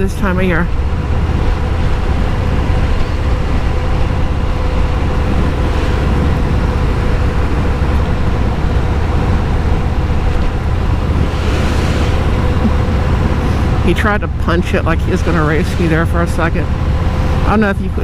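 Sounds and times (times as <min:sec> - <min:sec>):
wind noise on microphone: 0:00.0 - 0:18.0.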